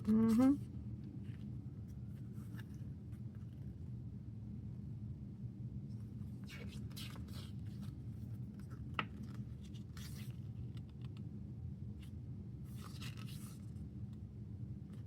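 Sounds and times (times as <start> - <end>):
steady low hum: 0.0 - 15.0
paper pages rustling: 6.4 - 11.2, 12.7 - 13.8.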